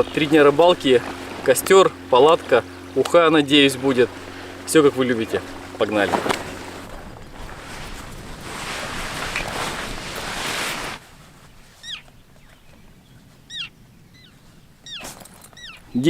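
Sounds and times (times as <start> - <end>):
steady rushing noise: 0.0 - 11.7
gulls calling: 0.0 - 16.0.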